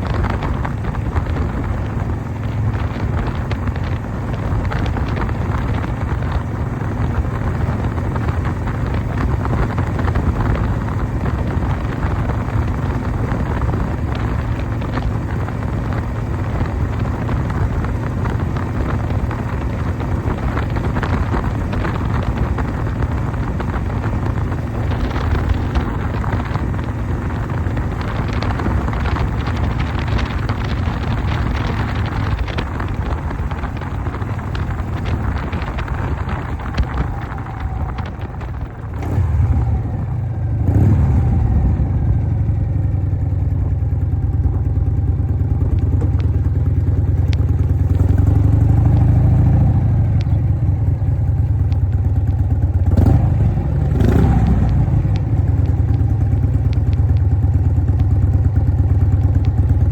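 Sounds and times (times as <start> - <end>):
motorcycle engine running: 0.0 - 59.9
wind buffeting microphone: 0.0 - 59.9.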